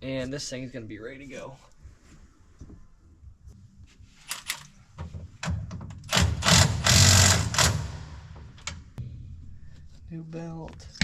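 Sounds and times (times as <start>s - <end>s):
power tool rattling: 6.0s - 8.5s.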